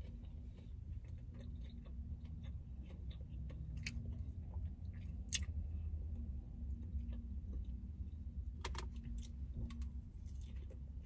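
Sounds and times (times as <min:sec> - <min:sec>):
person chewing lettuce: 0:00.0 - 0:06.1, 0:08.7 - 0:11.0
steady low hum: 0:00.0 - 0:11.0.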